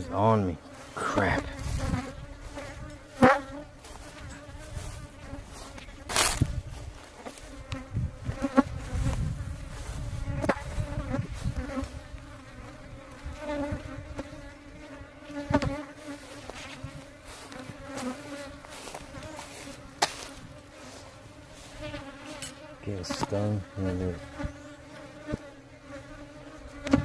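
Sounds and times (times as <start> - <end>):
honeybees buzzing: 0.0 - 27.0
sharp bumps on microphone: 1.2 - 12.0, 15.4 - 21.0.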